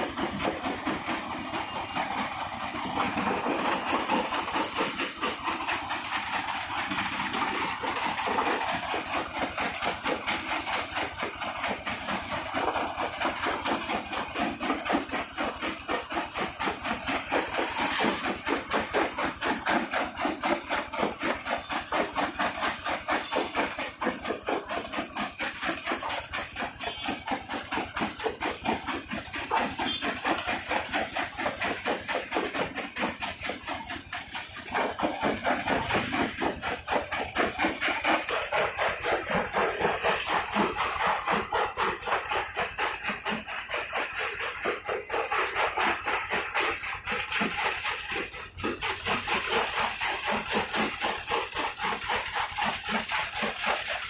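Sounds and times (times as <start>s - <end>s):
machine rapid pounding: 0.0s - 54.0s.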